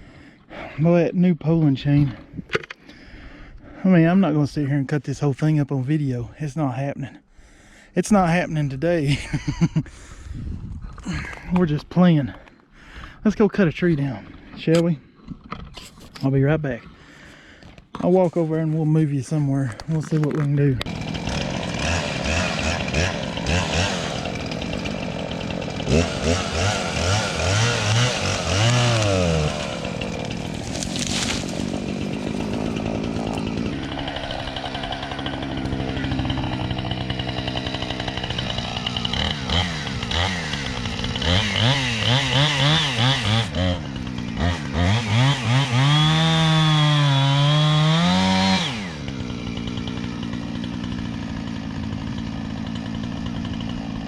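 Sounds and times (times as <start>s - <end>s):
chainsaw idling and revving: 19.3s - 54.0s.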